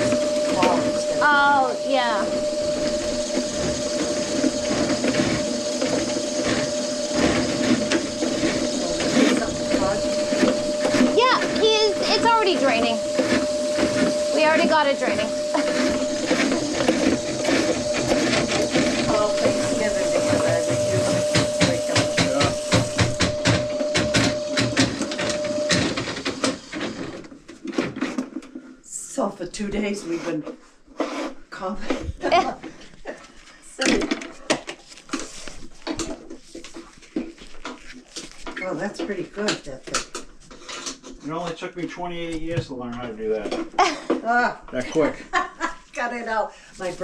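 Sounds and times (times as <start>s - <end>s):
motor whine: 0.0s - 27.1s
drain-cleaning machine running: 0.0s - 27.2s.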